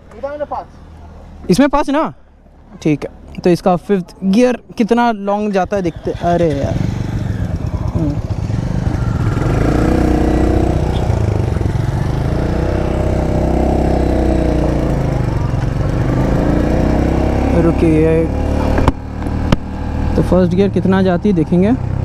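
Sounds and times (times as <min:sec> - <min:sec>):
motorcycle engine revving: 0:05.6 - 0:22.0.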